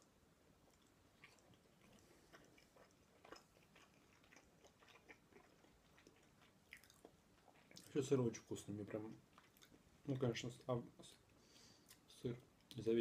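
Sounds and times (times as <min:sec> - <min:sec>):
chewing mouth clicks and smacks: 0:00.7 - 0:08.0, 0:09.3 - 0:10.3.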